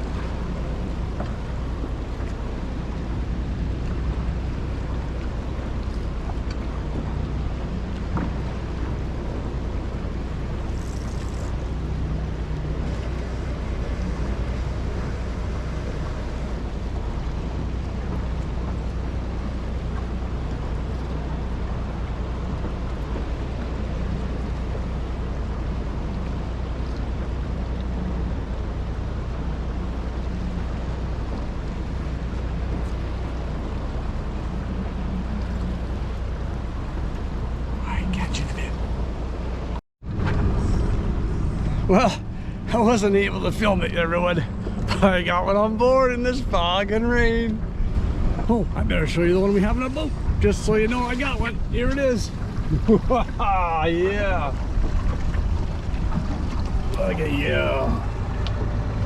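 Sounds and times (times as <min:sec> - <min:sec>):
boat engine low rumble: 0:00.0 - 0:59.0
ocean: 0:00.0 - 0:59.0
wind on microphone: 0:46.9 - 0:59.0.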